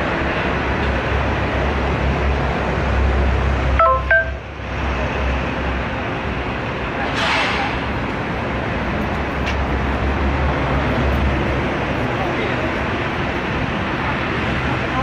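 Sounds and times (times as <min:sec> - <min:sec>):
two-tone electronic beeps: 0:03.8 - 0:04.5.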